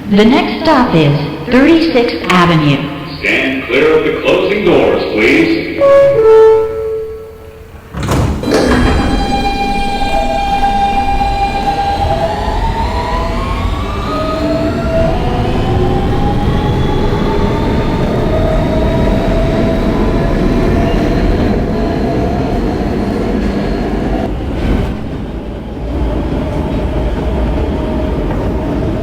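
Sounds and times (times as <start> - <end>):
train wheels rumbling on rails: 7.4 - 29.0
traction motors whining: 8.4 - 29.0.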